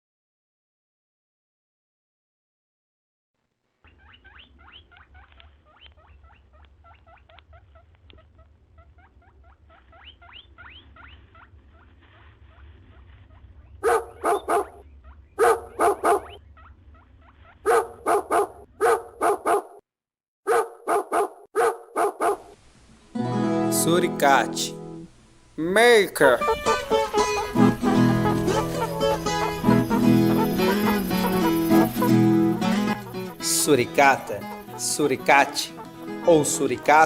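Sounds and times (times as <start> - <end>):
high rising animal chirps: 3.9 - 18.6, 26.4 - 34.8
animal barking: 3.9 - 19.8, 20.5 - 22.6, 26.4 - 37.0.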